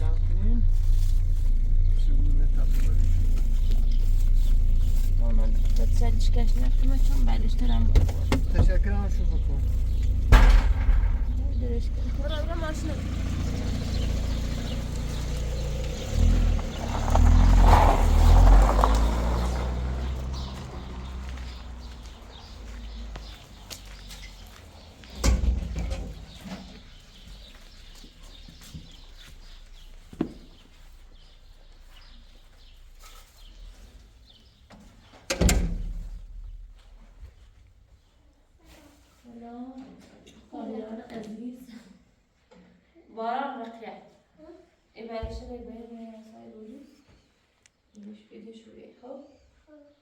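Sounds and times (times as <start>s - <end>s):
vehicle engine rumble: 0.0s - 37.9s
loud ringing bang: 10.2s - 12.0s.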